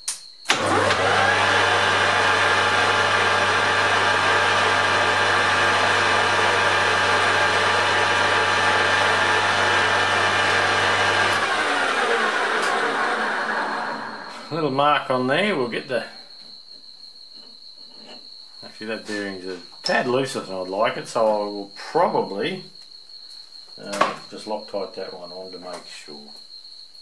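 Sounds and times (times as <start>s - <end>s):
metal lathe motor humming and whining: 0.5s - 14.5s.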